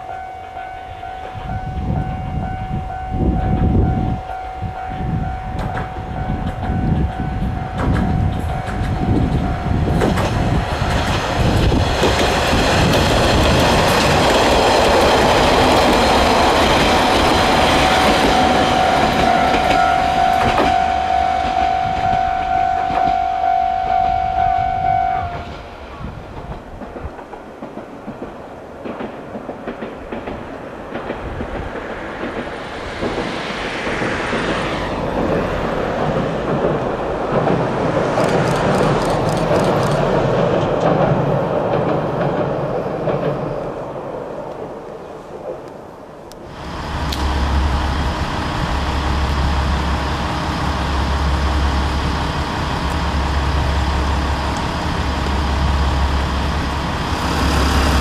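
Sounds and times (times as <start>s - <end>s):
steady high tone: 0.0s - 12.7s, 13.8s - 26.0s, 46.5s - 58.0s
diesel train wheels clacking: 2.7s - 44.0s, 46.3s - 58.0s.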